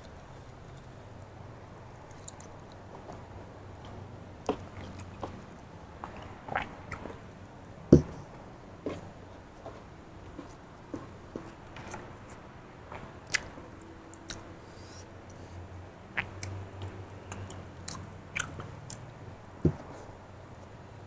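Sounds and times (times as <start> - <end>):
person chewing food: 2.0 - 7.4, 8.9 - 20.1.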